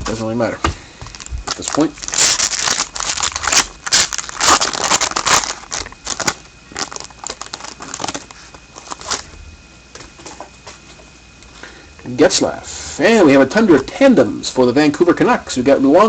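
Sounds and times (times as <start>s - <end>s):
cards and wrapper crinkling: 1.0s - 9.3s.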